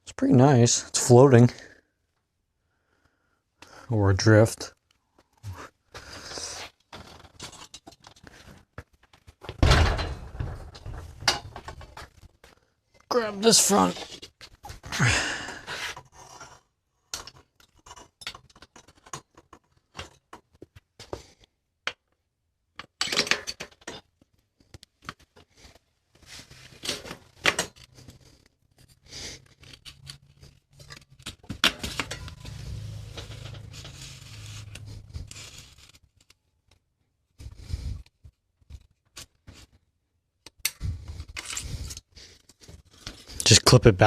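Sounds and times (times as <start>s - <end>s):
metal bicycle parts clanking: 9.6s - 12.0s, 30.8s - 35.9s.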